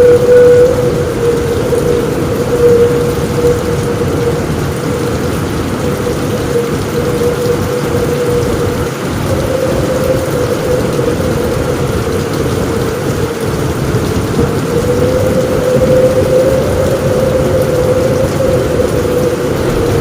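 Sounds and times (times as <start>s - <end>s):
heavy rain on a roof: 0.0s - 20.0s
low rumble: 17.7s - 20.0s.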